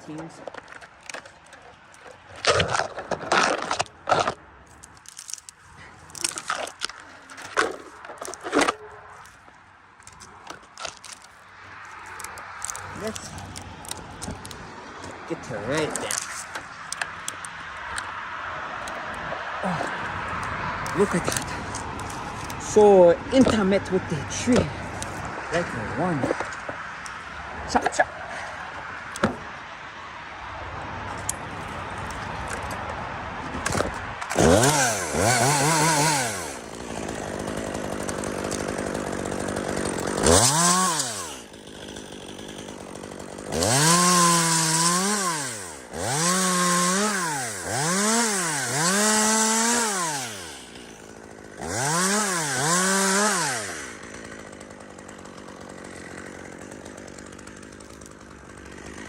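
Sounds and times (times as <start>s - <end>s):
chainsaw revving and idling: 6.0s - 9.4s, 10.2s - 18.1s, 19.6s - 29.3s, 33.6s - 59.0s.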